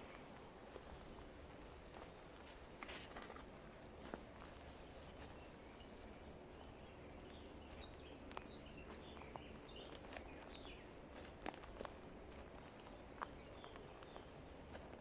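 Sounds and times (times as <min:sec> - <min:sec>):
distant birds chirping: 0:12.6 - 0:15.0.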